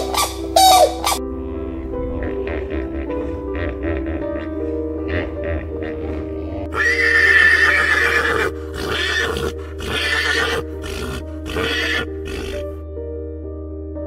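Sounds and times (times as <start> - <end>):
background music: 0.0 - 14.0
horse whinnying: 6.7 - 12.7.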